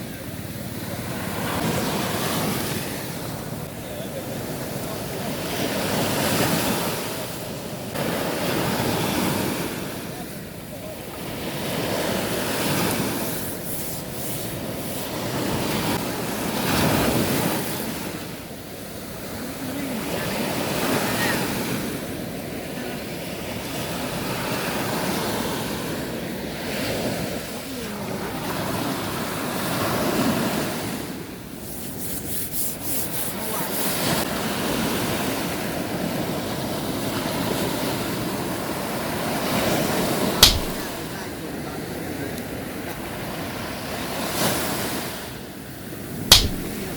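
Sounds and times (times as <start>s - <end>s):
sea waves washing: 0.0s - 46.9s
wind on microphone: 45.9s - 46.9s.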